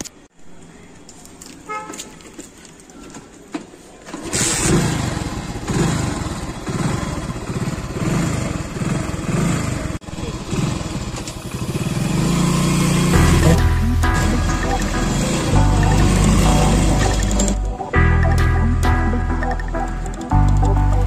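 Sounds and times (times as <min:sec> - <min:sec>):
motorcycle engine revving: 0:04.1 - 0:17.8.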